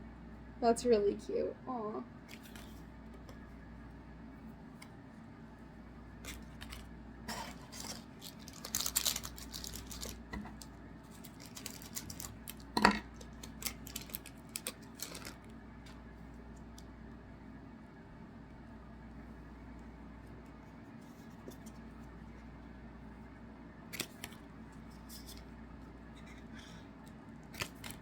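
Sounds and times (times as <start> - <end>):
cards clicking and rustling: 2.3 - 3.4, 6.2 - 15.5, 23.9 - 25.5, 26.2 - 28.0.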